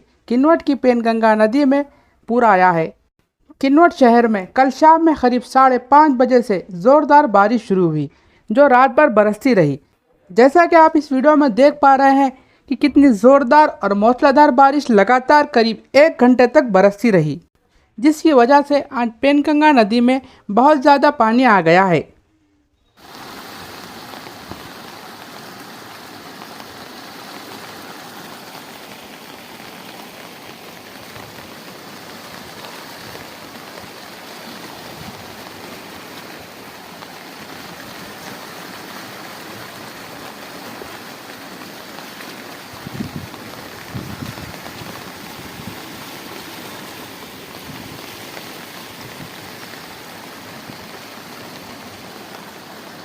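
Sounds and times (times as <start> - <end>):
rushing water from rain: 23.0 - 53.0.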